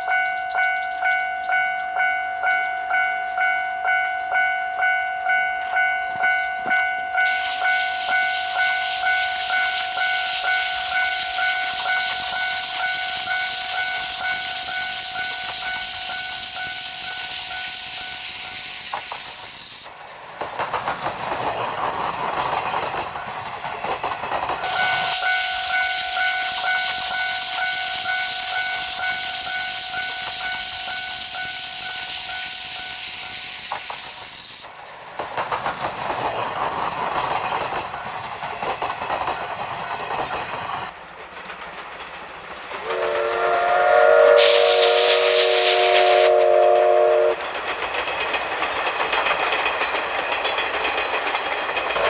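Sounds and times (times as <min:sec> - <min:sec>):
level-crossing bell ringing: 0:00.0 - 0:18.2, 0:24.8 - 0:32.5
passing train rumble: 0:00.0 - 0:52.0
steam locomotive hissing: 0:06.6 - 0:52.0.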